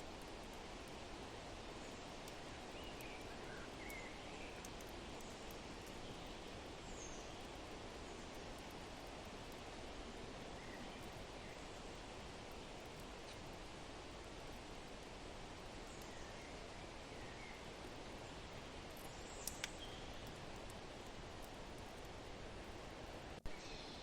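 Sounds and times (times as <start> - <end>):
fireplace crackling: 0.0 - 23.5
faint bird chirps: 19.0 - 20.4, 23.5 - 24.0.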